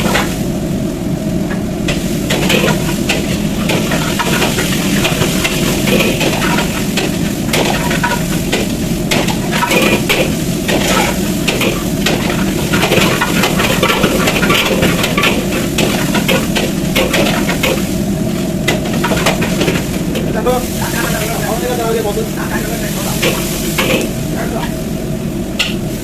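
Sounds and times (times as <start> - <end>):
food sizzling: 0.0 - 26.0
metal spatula clanking on wok: 1.9 - 17.9.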